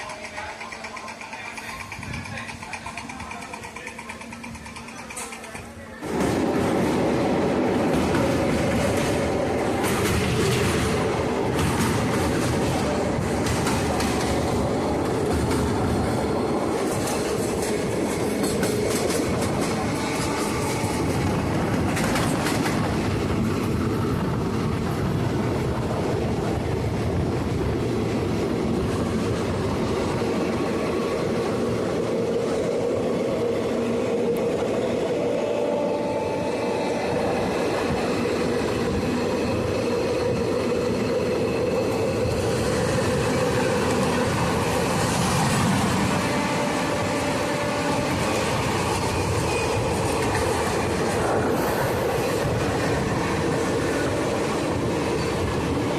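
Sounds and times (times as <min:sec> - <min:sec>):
coaches rattling: 0:00.0 - 0:06.3
train wheels on rails: 0:00.0 - 0:55.9.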